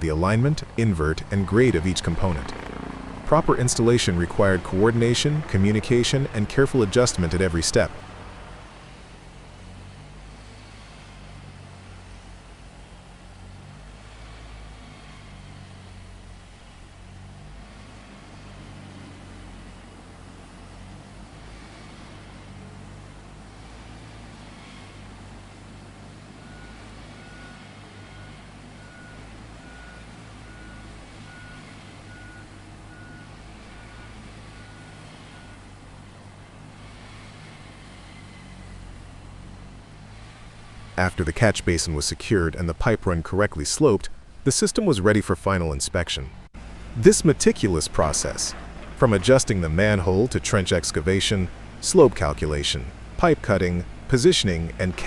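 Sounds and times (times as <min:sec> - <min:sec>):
machine engine running: 0:00.0 - 0:09.2
heavy machine engine running: 0:00.0 - 0:42.7, 0:46.6 - 0:55.0
reversing alarm beeping: 0:26.4 - 0:35.8.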